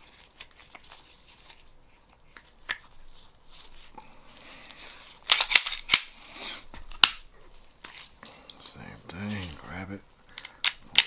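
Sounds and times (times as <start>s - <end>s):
pistol parts clicking: 5.2s - 6.2s, 6.8s - 7.3s, 10.3s - 11.0s.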